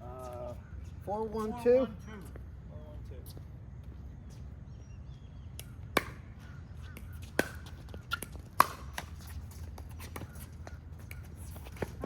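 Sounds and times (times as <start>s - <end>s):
paddles striking pickleball: 5.6s - 6.3s, 6.9s - 12.0s.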